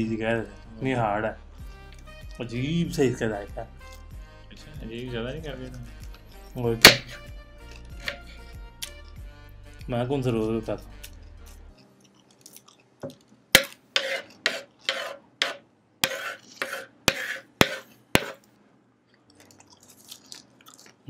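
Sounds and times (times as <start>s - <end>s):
faint chewing: 7.6s - 9.2s, 11.0s - 13.4s, 19.1s - 21.0s.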